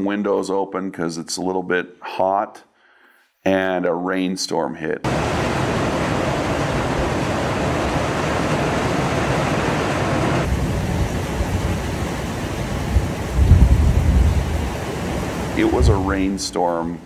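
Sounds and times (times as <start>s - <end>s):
heavy rain pouring: 5.1s - 17.0s
low rumble: 12.8s - 14.7s, 15.6s - 16.6s.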